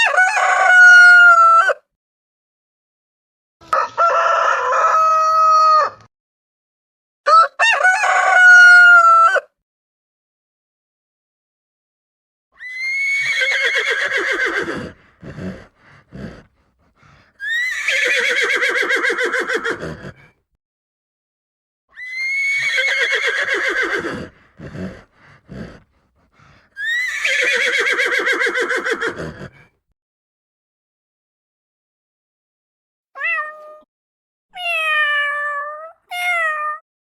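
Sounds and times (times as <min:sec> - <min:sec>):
horse whinnying: 0:12.6 - 0:16.5, 0:17.4 - 0:20.3, 0:22.0 - 0:25.8, 0:26.8 - 0:29.7.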